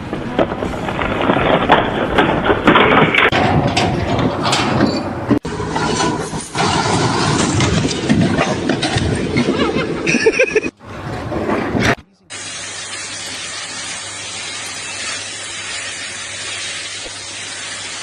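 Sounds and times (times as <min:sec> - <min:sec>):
steady hiss: 0:12.4 - 0:18.0.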